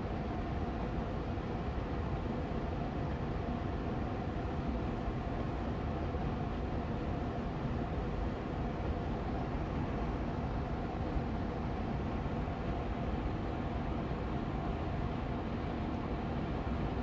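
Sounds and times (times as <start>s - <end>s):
air purifier fan running: 0.0s - 17.0s.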